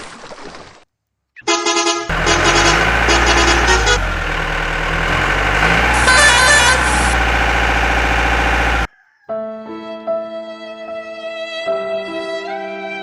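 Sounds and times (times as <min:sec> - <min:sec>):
cartoon vehicle horn honking: 0:01.4 - 0:04.9, 0:05.6 - 0:07.5
steady engine drone: 0:02.1 - 0:08.9.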